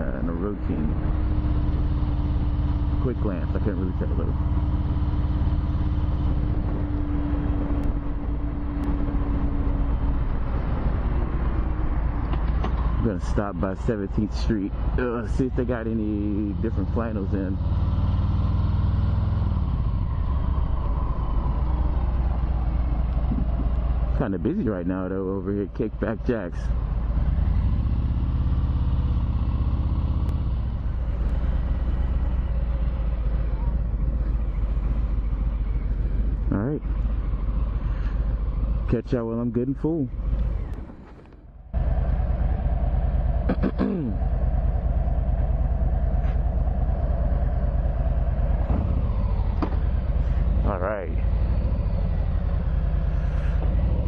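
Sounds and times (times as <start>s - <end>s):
motorcycle engine running: 0.0s - 24.6s, 26.0s - 39.0s, 40.1s - 54.0s
wind and road noise: 0.0s - 54.0s
motorcycle engine idling: 28.2s - 39.0s, 41.4s - 54.0s
steady hum: 41.6s - 54.0s.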